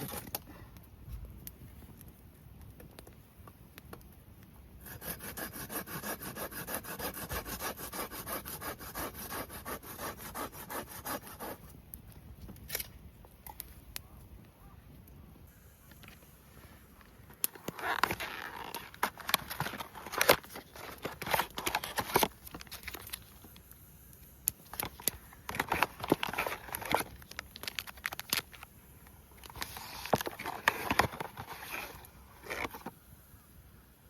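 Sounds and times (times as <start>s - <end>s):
rustling and crinkling handling noise: 0.0s - 2.1s, 15.8s - 33.0s.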